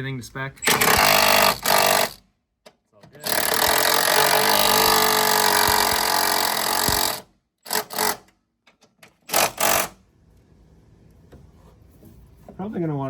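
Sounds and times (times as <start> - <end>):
impact wrench hammering: 0.6 - 2.2, 3.2 - 8.3, 9.3 - 10.0.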